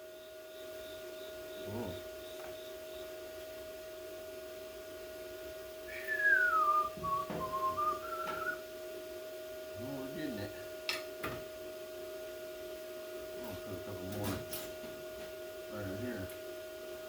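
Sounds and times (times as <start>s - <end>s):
steady background hum: 0.0s - 17.0s
person whistling: 5.9s - 8.6s.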